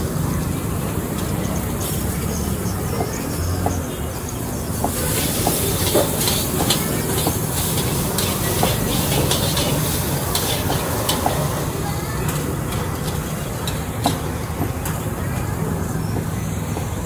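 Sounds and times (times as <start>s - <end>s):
food frying sizzle: 4.7s - 13.8s
utensils knocking and clinking: 4.8s - 11.6s.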